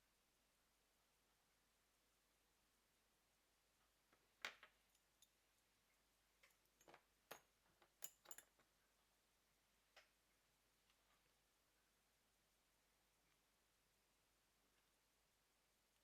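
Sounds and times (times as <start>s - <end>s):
small metal tools clicking: 6.4s - 8.7s.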